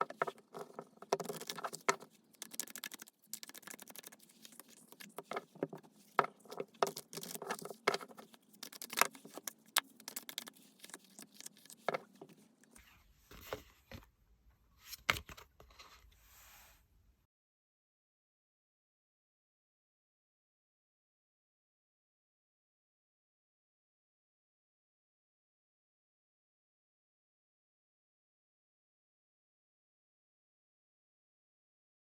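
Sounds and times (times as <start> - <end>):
cards shuffled on a table: 0.0 - 12.4.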